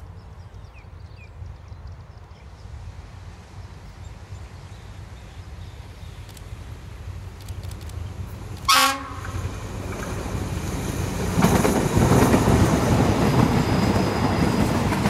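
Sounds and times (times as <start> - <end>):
train horn blast: 8.7 - 9.4.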